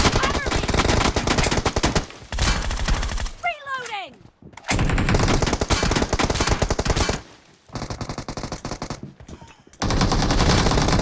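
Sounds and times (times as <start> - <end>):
video game automatic gunfire: 0.0 - 3.3, 4.7 - 7.2, 7.8 - 9.0, 9.8 - 11.0.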